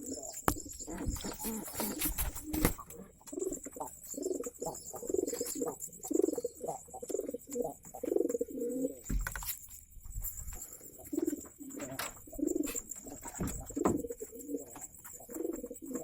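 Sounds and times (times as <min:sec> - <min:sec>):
pigeons cooing: 0:00.0 - 0:09.4, 0:10.4 - 0:16.0
sharp knocks and thuds: 0:09.0 - 0:09.6, 0:13.2 - 0:14.1.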